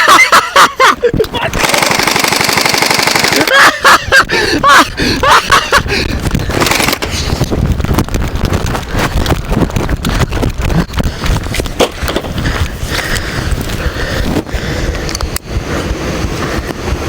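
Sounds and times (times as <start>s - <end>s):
vehicle rumbling over rough ground: 5.8s - 17.0s.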